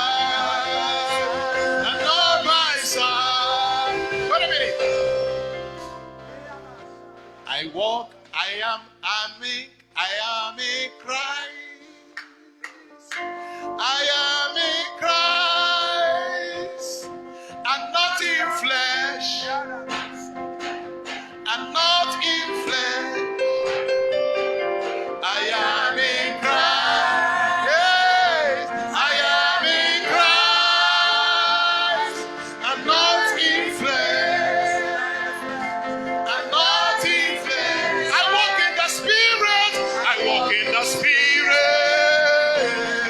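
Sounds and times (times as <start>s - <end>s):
voices singing with vibrato: 0.0s - 6.7s, 25.2s - 43.0s
sustained keyboard chords: 0.0s - 9.2s, 9.8s - 43.0s.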